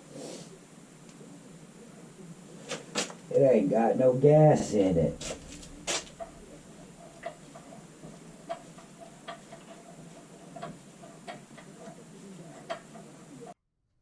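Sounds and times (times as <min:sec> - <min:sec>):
low background hum: 0:00.0 - 0:13.6
clock ticking: 0:05.0 - 0:13.0.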